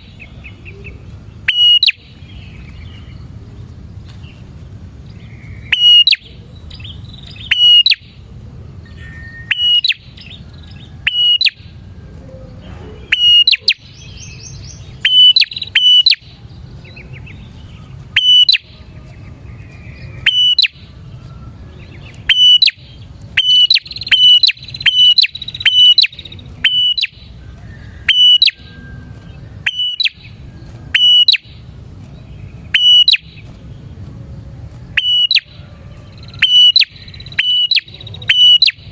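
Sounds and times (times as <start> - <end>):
low background rumble: 0.0 - 38.9
bird calling sharp high notes: 0.8 - 2.2, 5.5 - 6.4, 7.2 - 8.2, 8.8 - 10.4, 11.1 - 11.8, 12.8 - 16.4, 17.0 - 18.8, 20.0 - 21.0, 22.1 - 31.6, 32.7 - 33.5, 35.0 - 35.6, 36.2 - 38.9.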